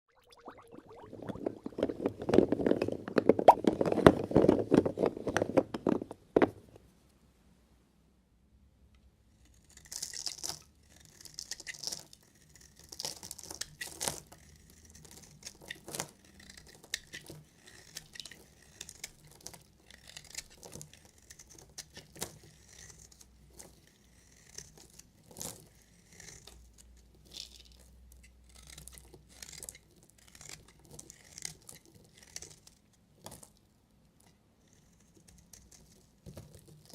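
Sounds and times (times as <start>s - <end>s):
knife scraping dry soap: 9.3s - 36.9s.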